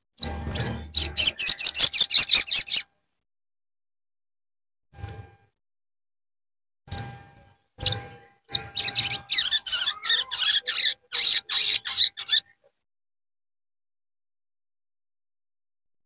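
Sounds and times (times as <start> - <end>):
bird calling: 0.2 - 2.8, 7.8 - 12.7.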